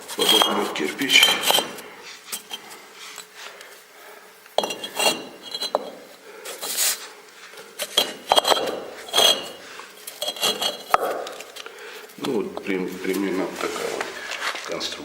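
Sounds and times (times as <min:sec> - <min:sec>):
brick scraping: 0:00.0 - 0:03.2, 0:04.6 - 0:06.0, 0:07.8 - 0:11.6
bricks clinking and knocking: 0:00.1 - 0:01.8, 0:04.6 - 0:06.0, 0:07.8 - 0:11.6.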